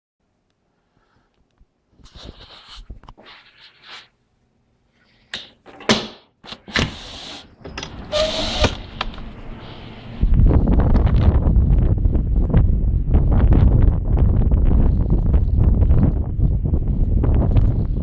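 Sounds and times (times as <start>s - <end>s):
wind buffeting microphone: 10.1s - 18.0s.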